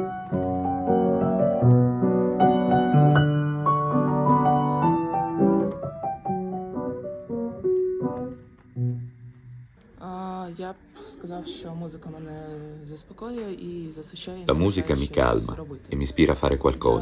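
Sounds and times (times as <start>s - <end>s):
piano playing: 0.0s - 9.9s.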